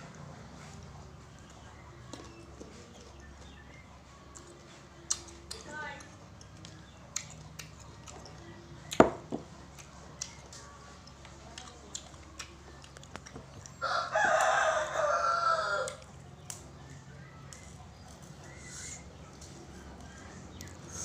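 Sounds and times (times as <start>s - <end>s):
rooster crowing: 13.8s - 16.0s.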